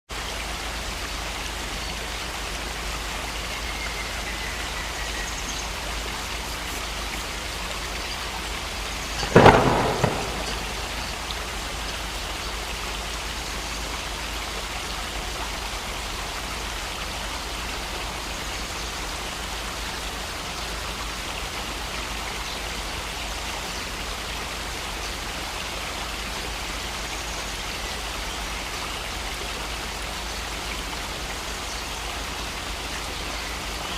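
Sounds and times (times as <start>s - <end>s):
heavy rain falling: 0.1s - 33.9s
thunder clap: 9.2s - 11.4s.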